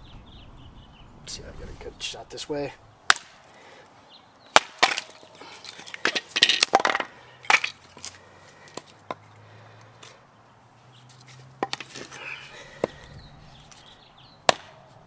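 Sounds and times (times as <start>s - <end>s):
hatchet chopping wood: 3.1s - 3.4s, 4.5s - 5.2s, 11.6s - 12.1s, 14.4s - 14.9s
wood pieces clattering on concrete: 4.5s - 9.2s, 11.2s - 13.9s.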